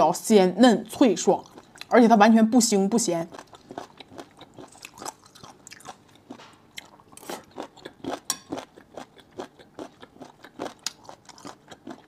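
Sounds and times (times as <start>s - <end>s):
crunchy chewing: 3.3s - 12.0s.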